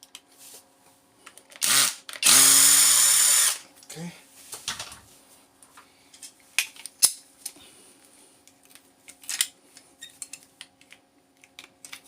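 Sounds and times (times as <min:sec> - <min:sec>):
small parts clicking and clinking: 0:08.5 - 0:12.0.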